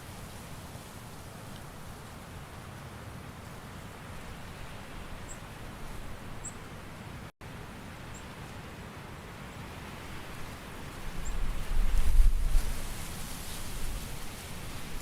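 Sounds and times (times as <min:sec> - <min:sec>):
leaves rustling: 0:00.0 - 0:02.9, 0:09.9 - 0:15.0.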